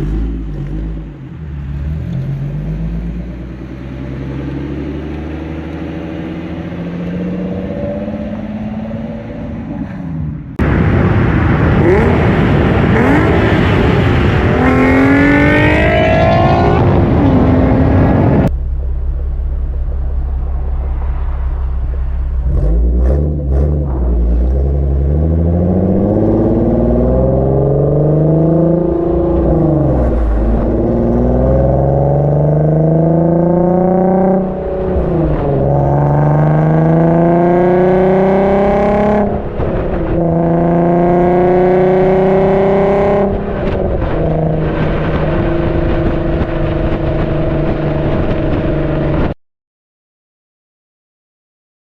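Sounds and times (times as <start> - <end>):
car engine revving hard: 11.5 - 18.5, 20.8 - 49.3
car accelerating through gears: 11.8 - 18.5, 22.4 - 49.2.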